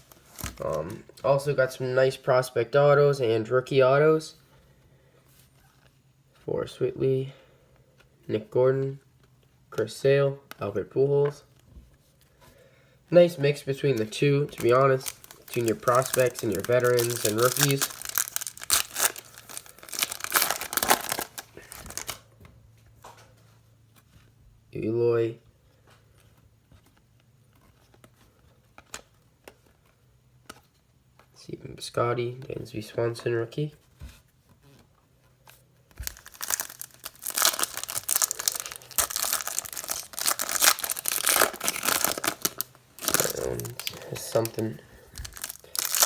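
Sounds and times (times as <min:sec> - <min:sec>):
wrapper crinkling and tearing: 0:14.0 - 0:22.2, 0:35.9 - 0:46.0.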